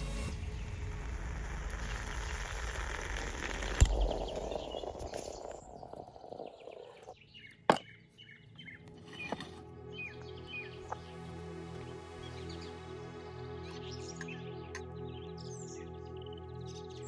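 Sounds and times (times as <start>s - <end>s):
dense steady hiss: 0.0s - 5.5s
small birds chirping: 3.8s - 17.0s.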